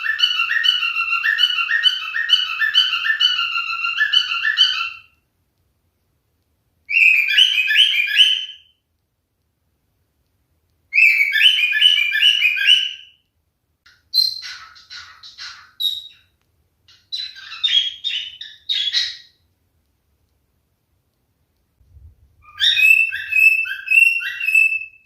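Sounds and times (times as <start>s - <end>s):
cockatiel whistling: 0.0s - 5.1s, 6.9s - 8.7s, 10.9s - 13.2s, 16.9s - 19.3s, 22.4s - 25.0s
cockatiel chirps: 0.0s - 5.2s, 6.9s - 8.8s, 10.9s - 13.2s, 13.9s - 19.4s, 22.4s - 25.0s.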